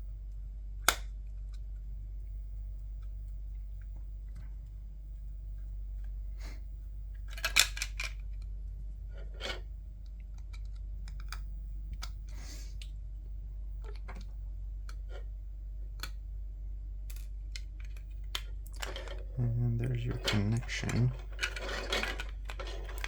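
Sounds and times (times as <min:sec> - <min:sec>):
steady low hum: 0:00.0 - 0:23.0
plastic headset parts clicking: 0:07.3 - 0:08.5.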